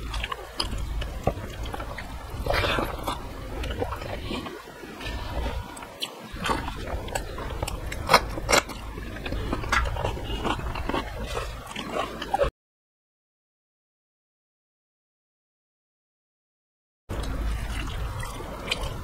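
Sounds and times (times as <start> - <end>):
chewing and mouth noises: 0.0 - 12.5, 17.1 - 19.0.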